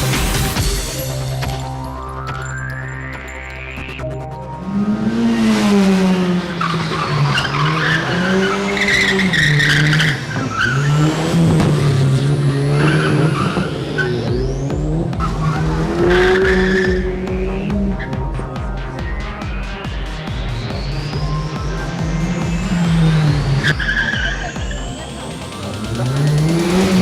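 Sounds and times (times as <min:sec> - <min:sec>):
car engine revving: 0:03.0 - 0:27.0
tyres squealing: 0:06.4 - 0:11.3.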